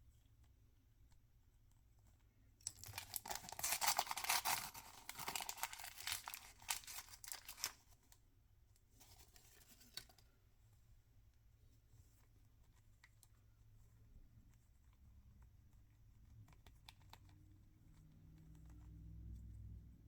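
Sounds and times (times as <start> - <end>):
packaging tearing and crinkling: 2.6 - 7.8.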